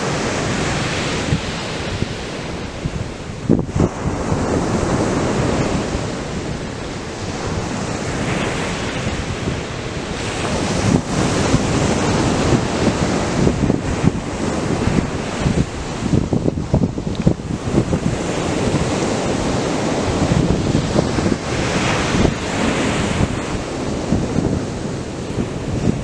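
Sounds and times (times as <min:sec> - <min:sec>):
ocean surf breaking: 0:00.0 - 0:26.0
wind gusting on microphone: 0:00.0 - 0:26.0.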